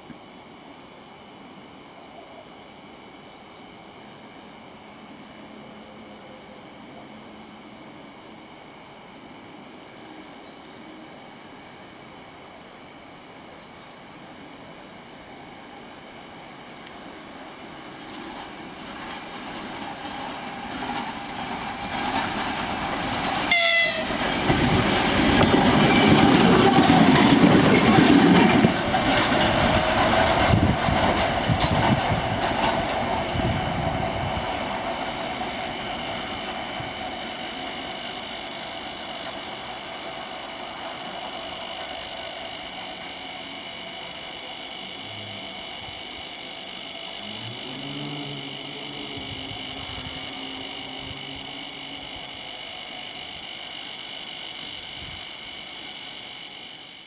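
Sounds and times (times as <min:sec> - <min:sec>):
diesel locomotive engines: 0:00.0 - 0:57.0
wheels clattering over rail joints: 0:18.1 - 0:35.4
locomotive horn blast: 0:23.5 - 0:24.2.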